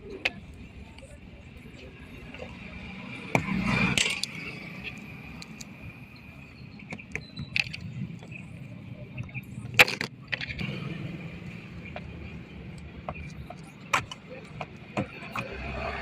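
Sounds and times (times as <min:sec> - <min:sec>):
metal tools clicking and scraping: 0:03.7 - 0:05.8.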